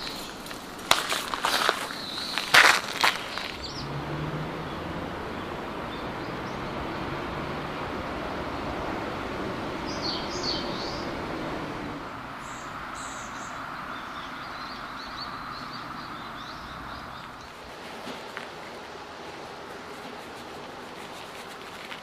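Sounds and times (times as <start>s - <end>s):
small birds chirping: 0.0s - 4.0s, 9.8s - 11.4s, 12.4s - 21.9s.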